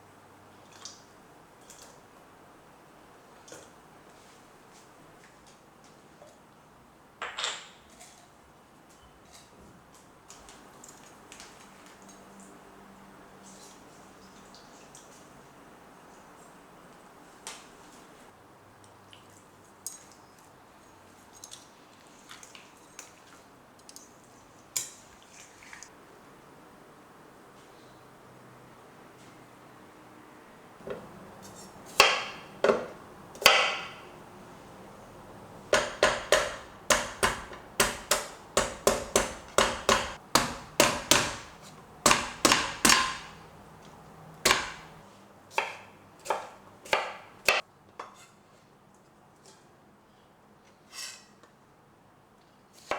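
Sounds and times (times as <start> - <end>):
low room hiss: 0.0 - 52.9
knife chopping on cutting board: 30.9 - 34.1, 35.8 - 43.4, 44.4 - 45.0, 45.6 - 47.6.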